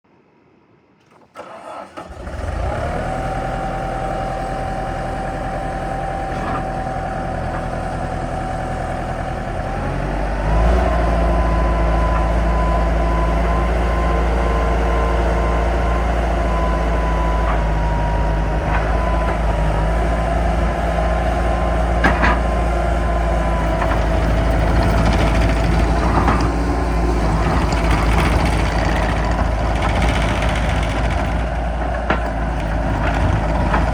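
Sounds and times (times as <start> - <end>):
diesel engine starting and idling: 1.1 - 33.9
engine whine: 1.4 - 33.9.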